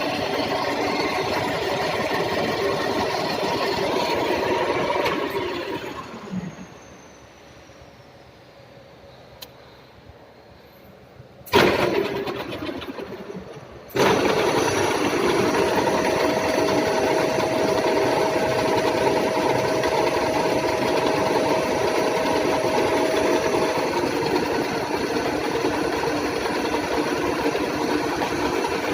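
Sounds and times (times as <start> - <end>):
thin steady whine: 0.0 - 11.5
milling machine clattering: 13.9 - 28.9.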